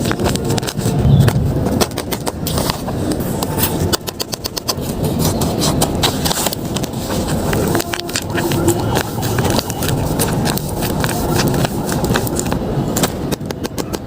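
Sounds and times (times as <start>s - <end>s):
paper packaging crinkling: 3.9s - 12.6s.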